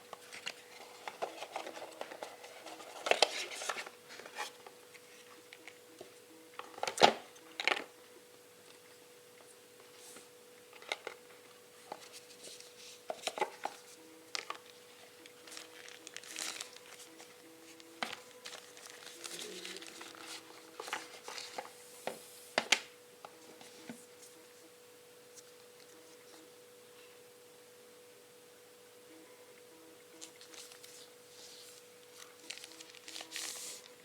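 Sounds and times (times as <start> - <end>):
plastic crinkling: 11.9 - 21.8, 30.2 - 34.0.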